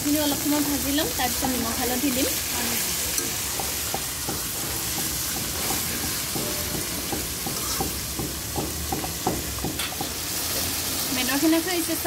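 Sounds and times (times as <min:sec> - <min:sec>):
chicken sizzling in hot oil: 0:00.0 - 0:12.0
metal spatula scraping wok: 0:00.2 - 0:08.2.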